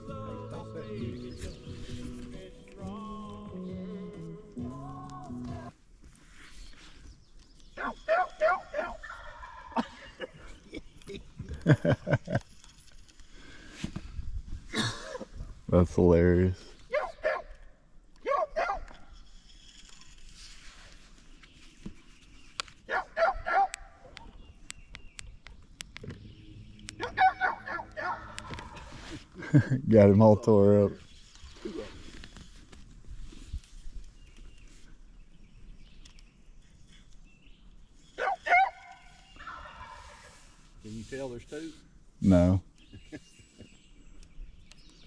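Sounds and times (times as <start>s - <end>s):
turkey yelps made by mouth: 7.8s - 9.8s, 16.9s - 17.5s, 18.2s - 19.0s, 22.9s - 23.8s, 27.0s - 28.9s, 38.2s - 40.3s.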